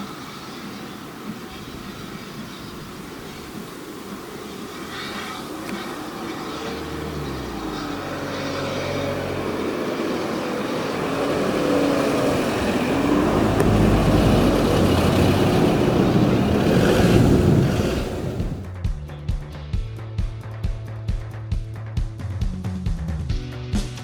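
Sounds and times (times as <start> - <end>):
steam train passing: 0.0 - 18.8.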